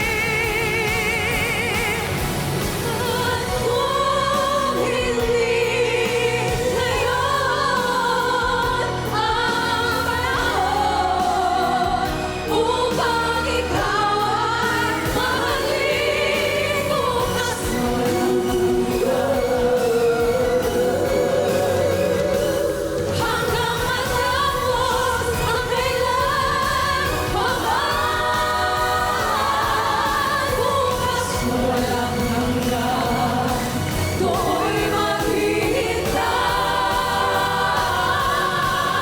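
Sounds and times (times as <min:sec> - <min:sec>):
band accompaniment: 0:00.0 - 0:39.0
female vocal group singing: 0:00.0 - 0:39.0.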